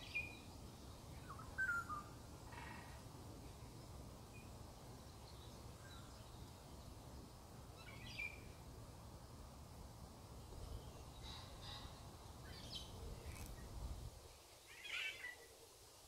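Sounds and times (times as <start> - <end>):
faint bird chirps: 0.0 - 3.0, 10.4 - 15.7.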